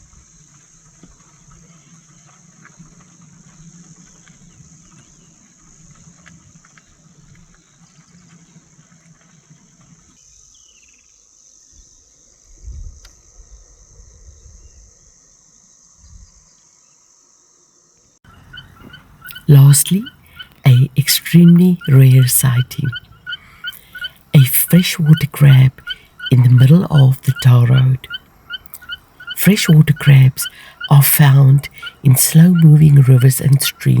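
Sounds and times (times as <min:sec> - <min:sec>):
insects calling: 0:15.2 - 0:34.0.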